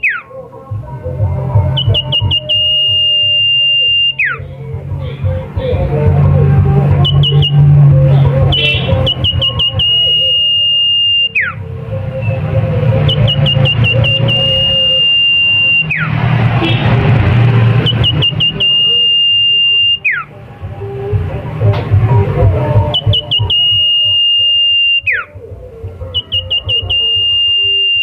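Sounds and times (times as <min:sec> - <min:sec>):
songbird singing: 0:00.0 - 0:00.4, 0:01.7 - 0:06.0, 0:06.8 - 0:16.1, 0:17.8 - 0:20.3, 0:22.9 - 0:25.3, 0:26.1 - 0:28.0.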